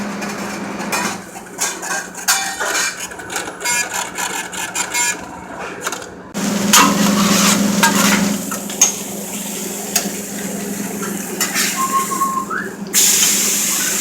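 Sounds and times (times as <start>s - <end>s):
utensils and pans knocking and scraping: 0.1s - 6.0s, 6.7s - 9.0s.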